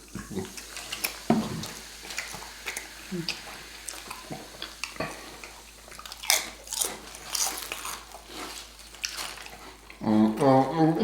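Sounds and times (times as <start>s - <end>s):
crunchy chewing close up: 2.1s - 10.0s.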